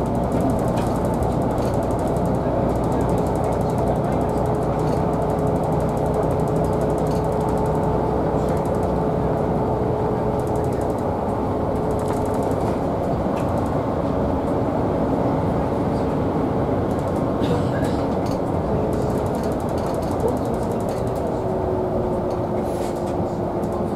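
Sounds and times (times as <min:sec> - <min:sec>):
rail vehicle rumble: 0:00.0 - 0:23.9
fast rattling clicks: 0:10.3 - 0:11.1, 0:11.8 - 0:13.8, 0:16.9 - 0:17.3, 0:18.2 - 0:21.4.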